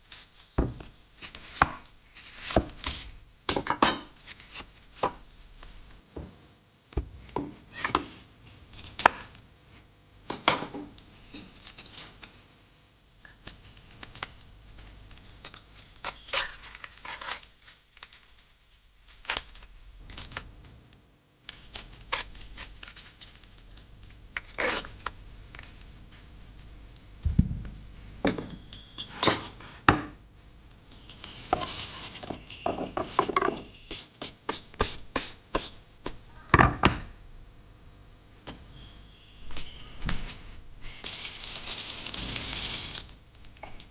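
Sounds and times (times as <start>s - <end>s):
heavy thuds: 27.2s - 28.0s
utensils knocking and scraping: 31.5s - 34.0s
rustling: 39.6s - 43.2s.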